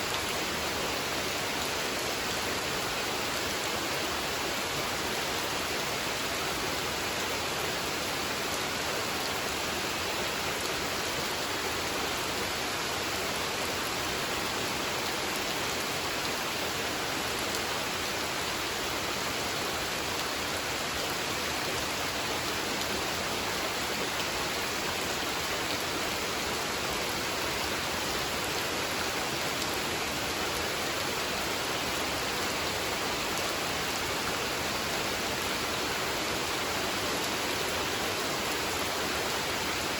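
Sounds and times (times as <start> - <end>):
rain falling on a pond: 0.0 - 39.9.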